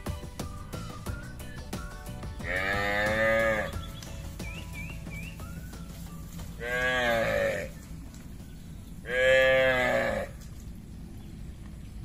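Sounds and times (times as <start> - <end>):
cattle mooing: 2.4 - 3.8, 6.6 - 7.8, 9.0 - 10.4.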